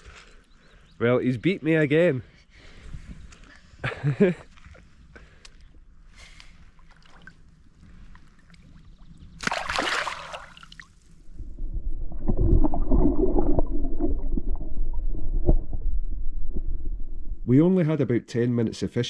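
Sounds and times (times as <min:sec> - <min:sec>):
water sloshing and gurgling: 0:06.6 - 0:17.0
water splash: 0:09.4 - 0:11.0.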